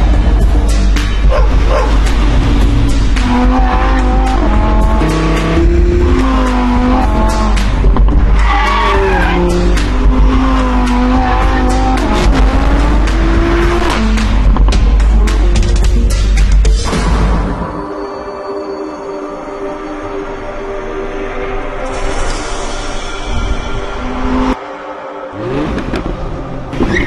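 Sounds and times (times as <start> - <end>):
music track: 0.0 - 26.9
car engine revving hard: 9.3 - 14.3.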